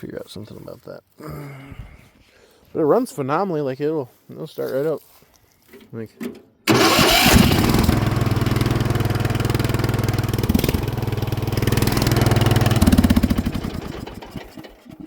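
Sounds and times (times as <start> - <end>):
lawn mower engine running: 6.7 - 15.0.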